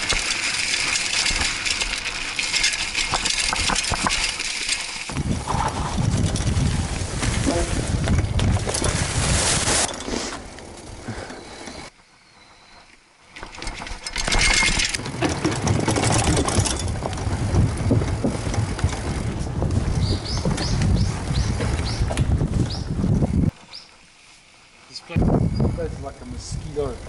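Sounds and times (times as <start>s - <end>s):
bike rattling and clattering: 0.0s - 11.9s, 13.2s - 23.9s
wind rushing over microphone: 5.1s - 10.0s, 16.2s - 23.6s, 25.2s - 27.0s.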